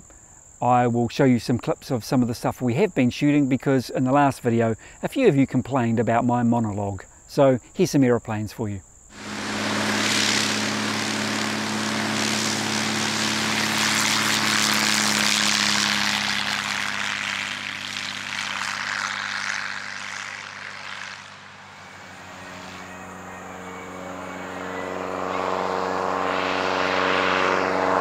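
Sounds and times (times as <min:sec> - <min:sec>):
propeller plane engine at full power: 0:09.1 - 0:28.0.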